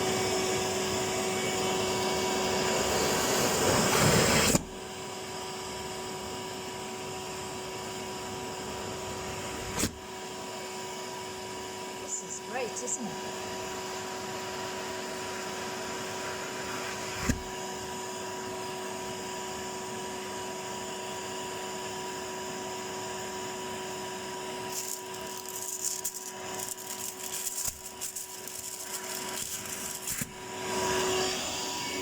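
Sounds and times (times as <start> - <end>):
vacuum cleaner humming: 0.0 - 32.0
scraping and rustling: 24.7 - 30.4.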